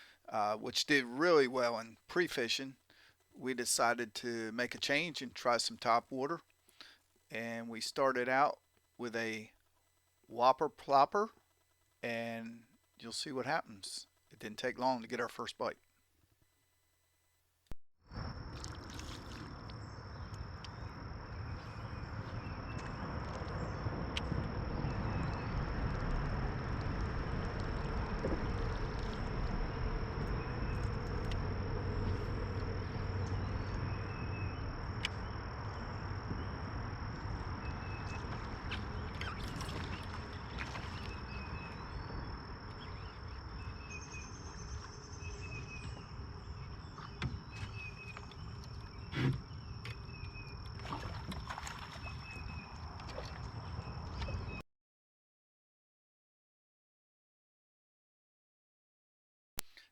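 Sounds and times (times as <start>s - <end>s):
water noise: 18.2s - 54.6s
wind rumble: 19.2s - 50.6s.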